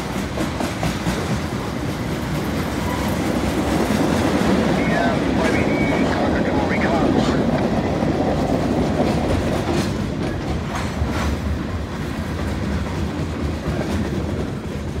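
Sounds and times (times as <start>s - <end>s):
freight train cars rumbling: 0.0s - 15.0s
wheels clicking over rail joints: 7.2s - 15.0s.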